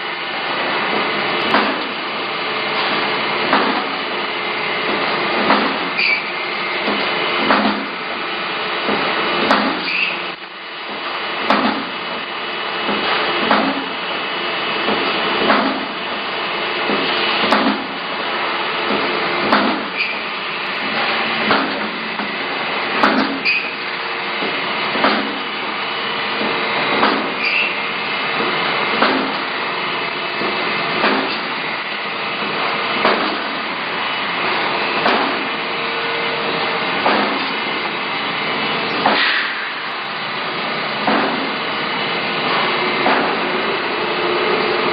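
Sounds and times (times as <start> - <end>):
factory machinery running: 0.0 - 44.9
sharp metallic knock: 39.0 - 39.7.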